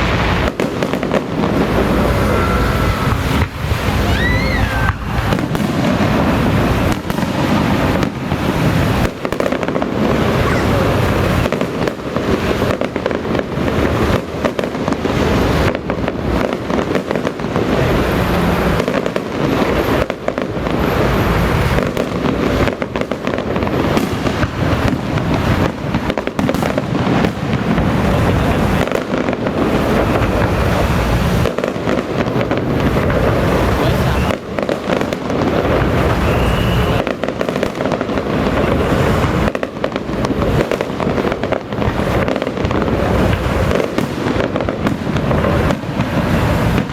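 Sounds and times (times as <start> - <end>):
firecrackers crackling: 0.0 - 46.9.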